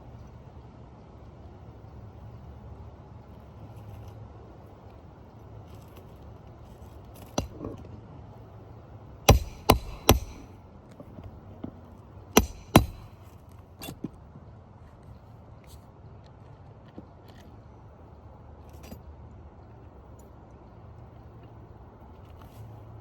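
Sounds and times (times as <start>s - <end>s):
hammer striking metal: 7.4s - 7.7s, 9.3s - 10.5s, 12.4s - 13.1s.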